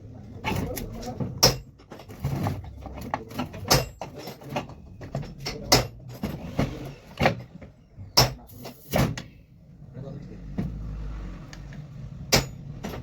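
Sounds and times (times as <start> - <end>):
tools and parts knocking: 0.4 - 9.3, 12.3 - 13.0.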